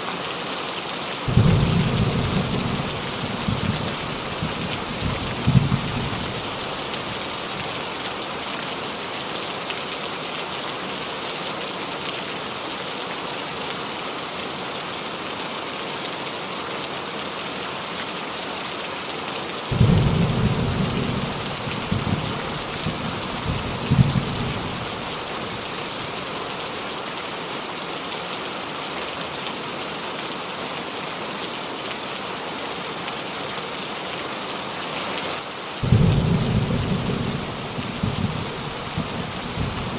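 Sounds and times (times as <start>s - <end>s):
rain on a roof: 0.0s - 39.9s
thunder rumbling: 1.3s - 6.9s, 19.7s - 25.7s, 35.8s - 39.9s.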